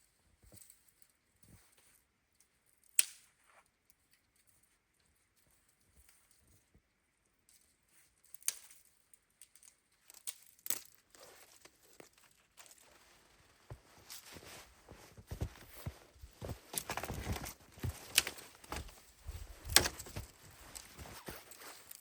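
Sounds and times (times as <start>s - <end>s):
rustling and crunching: 10.1s - 22.0s.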